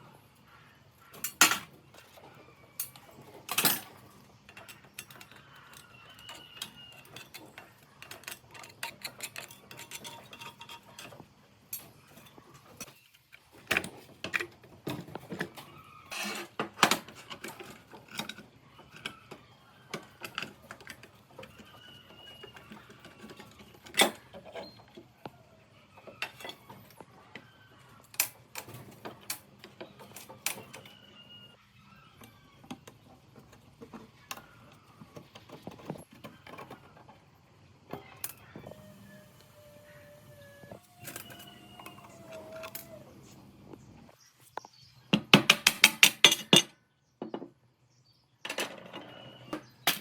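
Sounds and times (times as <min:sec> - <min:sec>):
metal tools clicking and clinking: 0:01.2 - 0:02.2, 0:02.8 - 0:15.0, 0:45.5 - 0:46.7.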